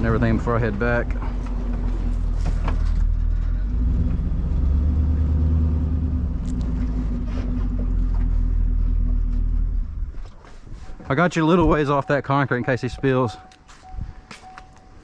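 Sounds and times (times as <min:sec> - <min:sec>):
engine running with low rumble: 0:00.0 - 0:11.0.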